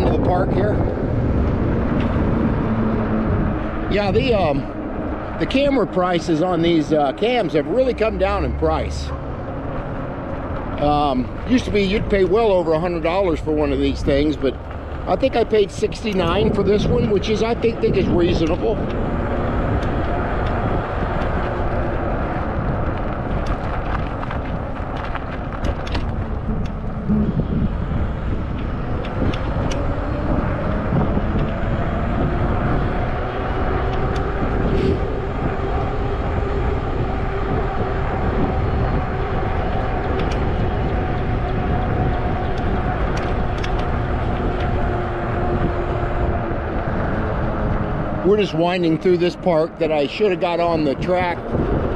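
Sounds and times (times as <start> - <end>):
bicycle tyre noise: 0.0 - 51.9
wind over microphone: 0.0 - 51.9
small clicks and rattles: 19.8 - 27.0, 39.6 - 44.8.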